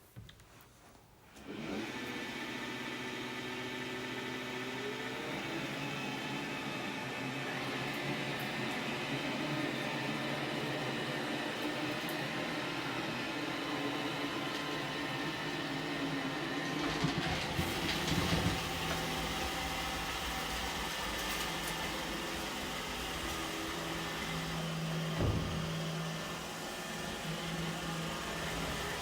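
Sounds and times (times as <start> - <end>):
robot vacuum motor hum: 1.4 - 29.0
knocks: 25.0 - 26.3.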